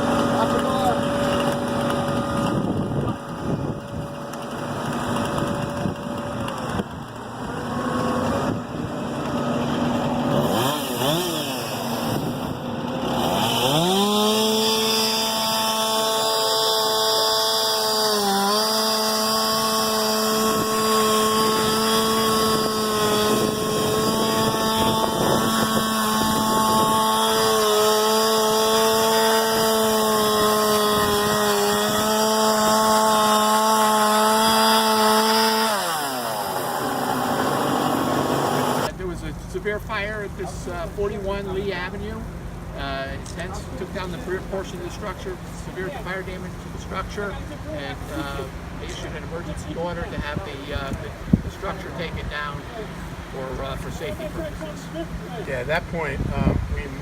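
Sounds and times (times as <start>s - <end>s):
chainsaw revving: 0.0s - 39.0s, 39.7s - 56.2s
engine humming: 0.0s - 57.0s.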